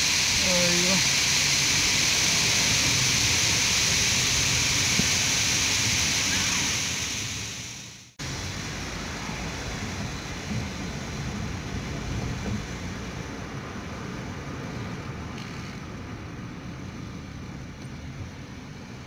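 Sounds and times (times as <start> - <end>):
waterfall rushing: 0.0 - 12.0
dull steady noise: 0.0 - 19.0.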